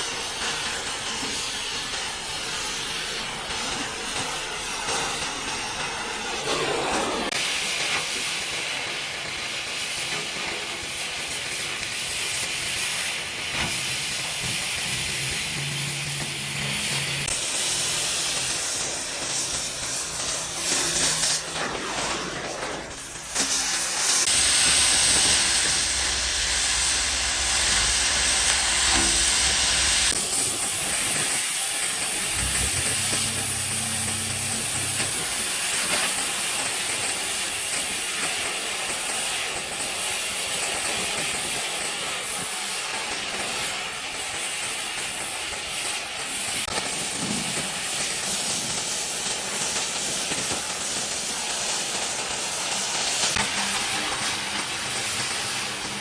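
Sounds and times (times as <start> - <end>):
steady hiss: 23.1 - 37.2
low hum: 32.1 - 35.7.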